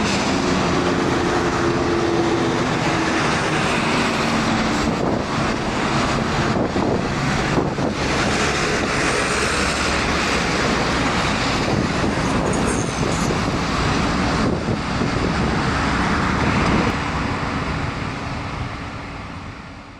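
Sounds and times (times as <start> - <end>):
jet engine rush: 0.0 - 19.9.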